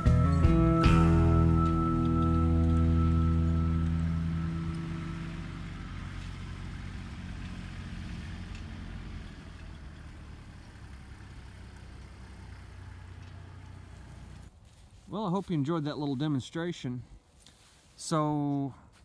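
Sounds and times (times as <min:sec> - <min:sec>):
background music: 0:00.0 - 0:06.2
diesel tractor engine running: 0:00.0 - 0:14.5.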